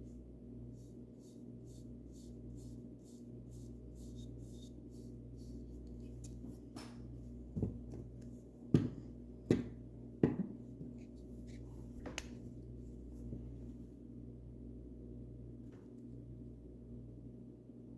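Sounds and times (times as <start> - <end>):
paintbrush strokes on wood: 0.0 - 7.3.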